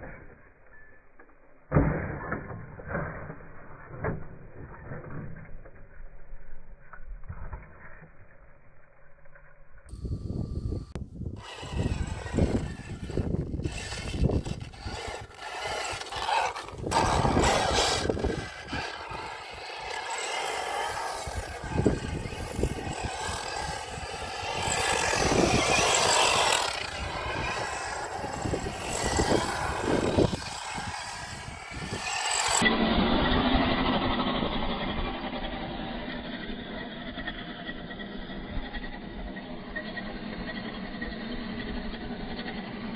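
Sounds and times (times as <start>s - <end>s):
rc truck motor whining: 8.6s - 42.9s
tyres scraping on dirt: 9.9s - 34.0s.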